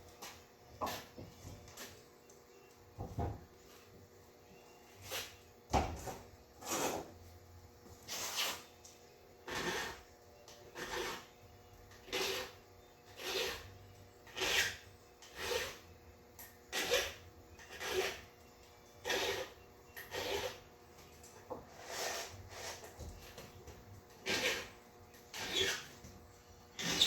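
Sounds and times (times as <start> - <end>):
file rasping on chain: 9.4 - 10.1, 10.7 - 15.9, 16.7 - 18.4, 19.0 - 20.7, 21.7 - 22.9, 24.2 - 25.9, 26.8 - 27.0.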